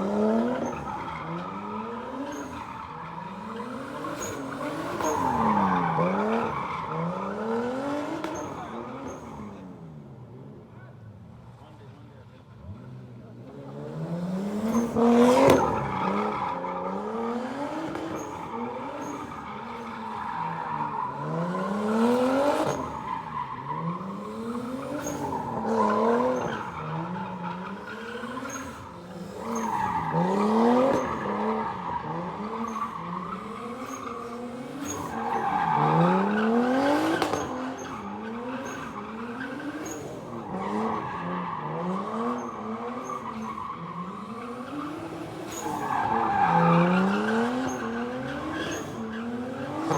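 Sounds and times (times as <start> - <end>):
tyres squealing and skidding: 0.0 - 49.9
car engine revving hard: 12.6 - 20.0, 20.8 - 49.9.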